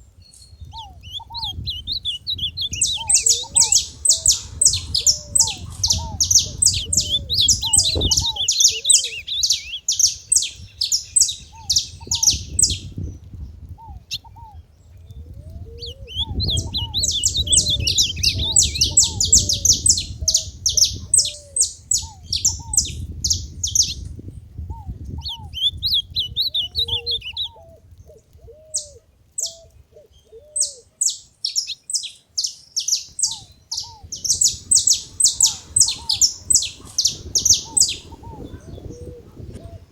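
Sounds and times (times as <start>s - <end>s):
finches chirping: 0.7s - 12.9s, 15.8s - 24.0s, 30.6s - 39.0s.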